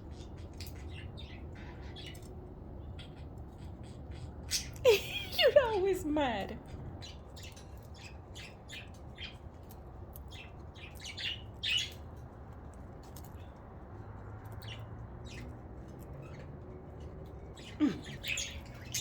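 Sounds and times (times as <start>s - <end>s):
budgerigars chirping: 0.0s - 4.8s, 10.3s - 12.1s, 17.6s - 19.0s.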